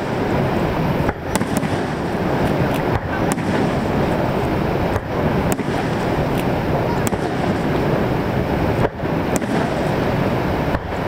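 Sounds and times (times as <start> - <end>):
fireworks popping and crackling: 0.0 - 11.0
waterfall roaring: 0.0 - 11.0.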